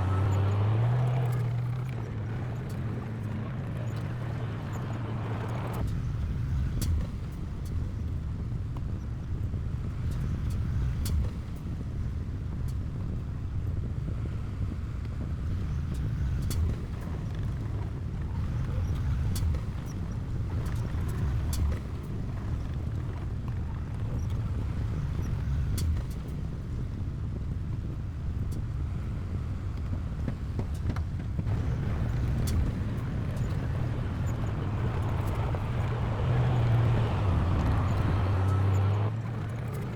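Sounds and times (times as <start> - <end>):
heavy diesel machinery rumbling: 28.1 - 39.9.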